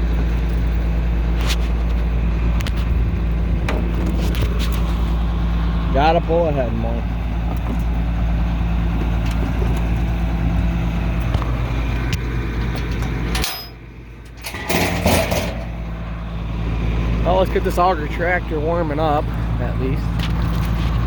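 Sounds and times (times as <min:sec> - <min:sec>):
tractor engine running: 0:00.0 - 0:21.0
clatter: 0:12.7 - 0:16.0.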